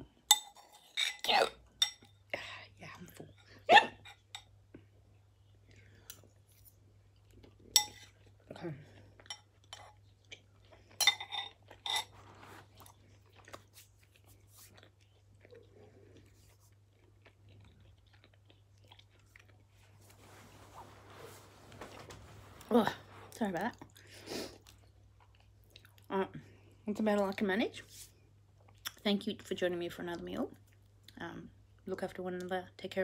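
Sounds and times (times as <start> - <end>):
person chewing: 4.7 - 20.1, 23.8 - 26.1.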